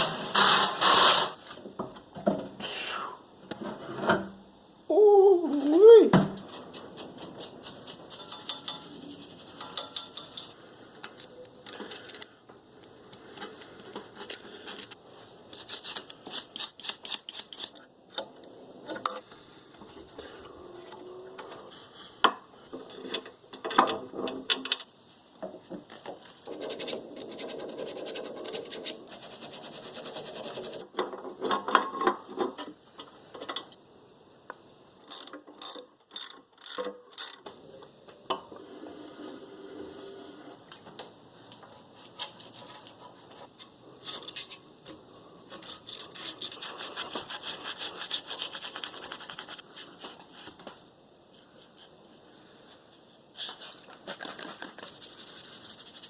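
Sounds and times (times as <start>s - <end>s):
rubbing and scraping on metal: 6.4s - 10.6s, 26.4s - 30.8s, 45.5s - 49.6s
ratchet wrench clicking: 35.0s - 37.4s.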